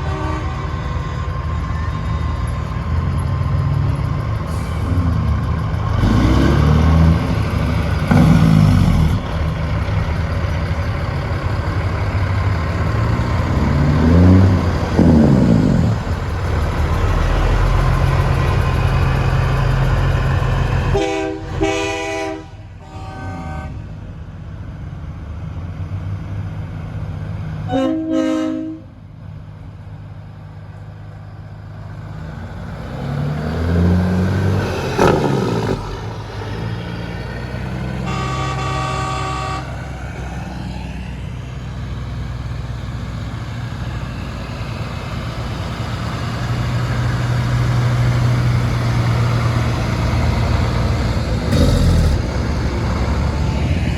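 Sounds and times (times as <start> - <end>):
truck air horn blasts: 0.0 - 1.3, 20.8 - 23.9, 27.7 - 29.0, 38.0 - 40.0, 51.5 - 52.3
diesel truck engines running: 0.7 - 27.8, 28.9 - 53.9.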